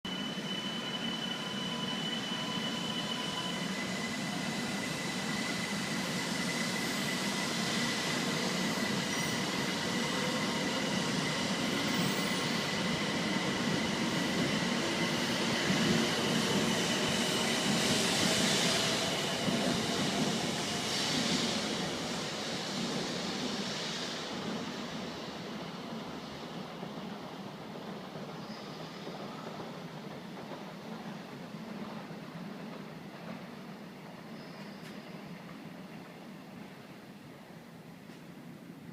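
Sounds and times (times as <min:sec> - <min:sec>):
train rushing on rails: 0:00.0 - 0:38.9.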